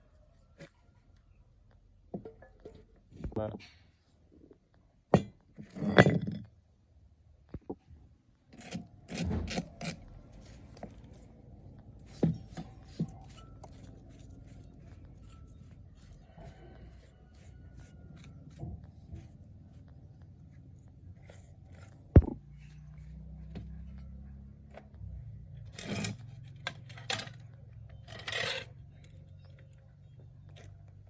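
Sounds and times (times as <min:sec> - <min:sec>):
metal tools clinking and scraping: 0:12.0 - 0:19.3, 0:25.7 - 0:29.7.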